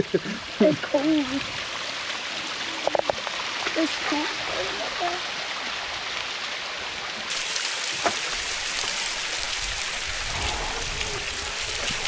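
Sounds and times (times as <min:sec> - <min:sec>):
waterfall splashing onto rocks: 0:00.0 - 0:12.0.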